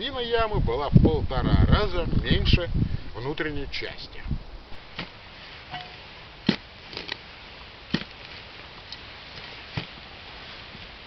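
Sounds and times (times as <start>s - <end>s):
shovel digging into soil: 4.9s - 10.1s.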